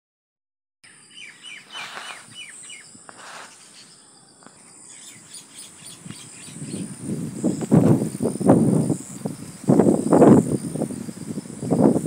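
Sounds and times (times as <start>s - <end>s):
small bird chirping: 0.8s - 9.4s
rustling noise: 1.6s - 4.7s.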